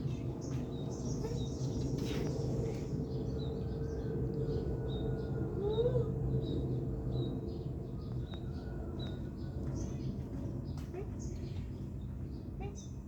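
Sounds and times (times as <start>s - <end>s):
small birds chirping: 0.0s - 4.6s.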